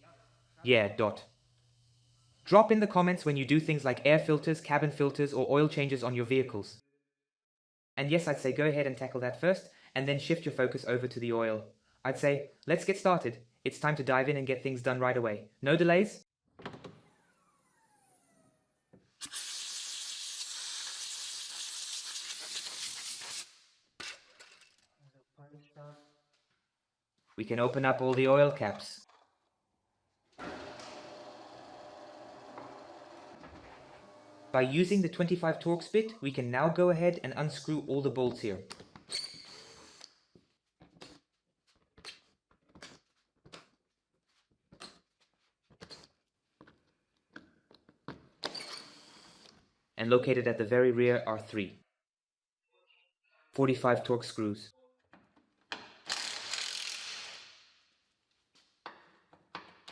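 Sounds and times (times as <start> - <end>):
screwdriver bit clicking and scraping: 56.1 - 57.4.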